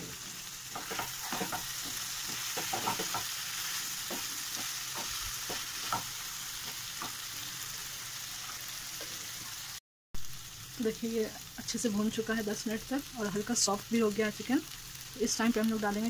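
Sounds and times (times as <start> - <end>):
chicken sizzling in a pan: 0.0 - 16.0
spatula scraping and knocking pan: 0.7 - 7.2.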